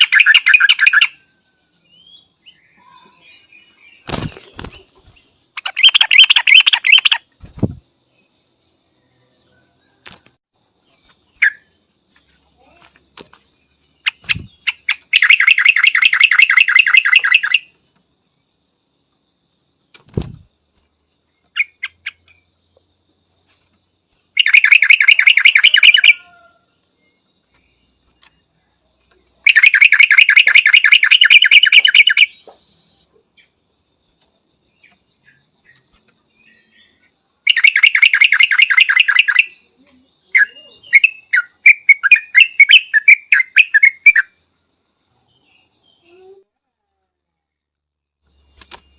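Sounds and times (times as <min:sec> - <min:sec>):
bird chirps: 0:00.0 - 0:17.9, 0:21.2 - 0:46.4
bird calling rapid notes: 0:05.6 - 0:07.8, 0:14.0 - 0:17.7, 0:24.4 - 0:26.3, 0:29.5 - 0:32.4, 0:37.5 - 0:39.5.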